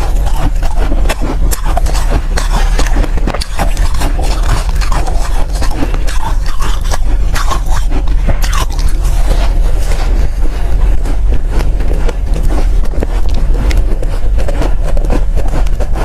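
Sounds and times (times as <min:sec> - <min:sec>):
chewing crunchy ice: 0:00.0 - 0:16.0.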